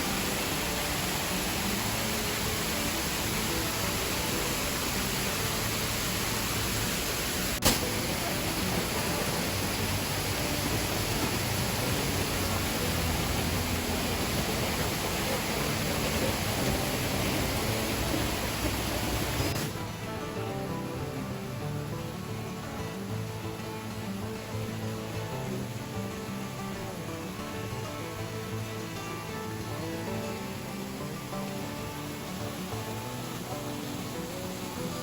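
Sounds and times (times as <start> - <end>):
waterfall rushing: 0.0 - 35.0
sharp click: 7.6 - 8.0.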